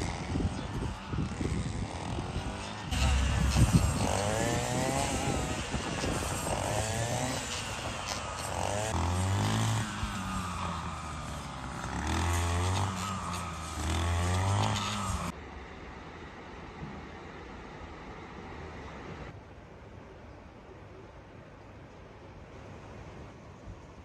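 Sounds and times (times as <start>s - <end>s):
small petrol engine revving: 0.0s - 15.4s.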